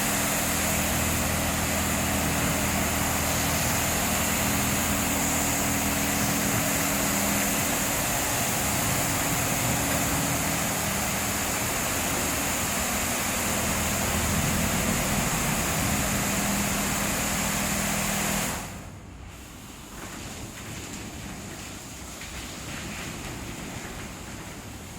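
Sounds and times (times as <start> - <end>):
motor hum: 0.0 - 18.9
car wash spray hissing: 0.0 - 24.9.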